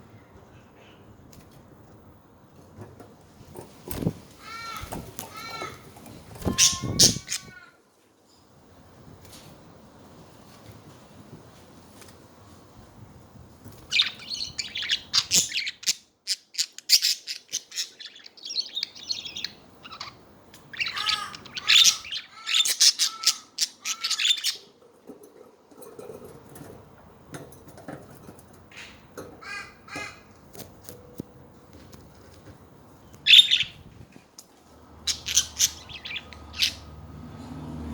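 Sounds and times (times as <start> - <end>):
budgerigars chirping and squawking: 4.0 - 7.6, 13.9 - 24.7, 33.2 - 33.8, 35.0 - 37.0.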